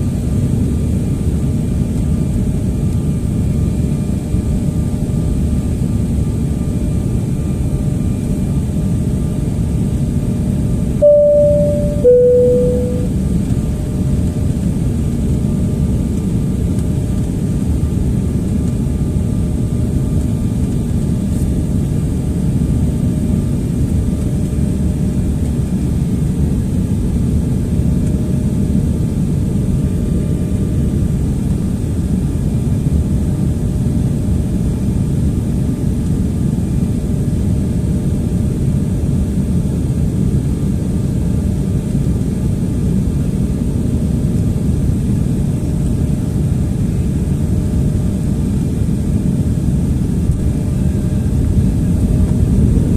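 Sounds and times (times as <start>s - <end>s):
faint steady hum: 11.0s - 13.1s.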